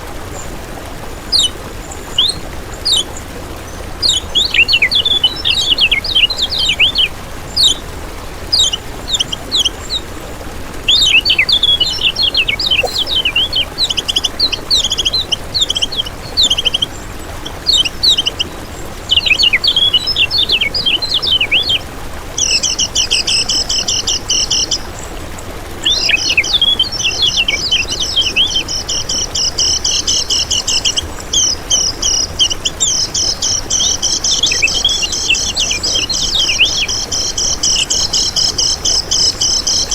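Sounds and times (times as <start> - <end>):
bird chirping and trilling: 10.9 - 17.0.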